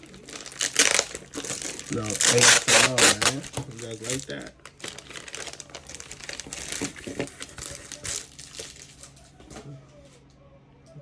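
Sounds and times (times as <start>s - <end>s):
packaging and tape crinkling: 0.0s - 9.4s.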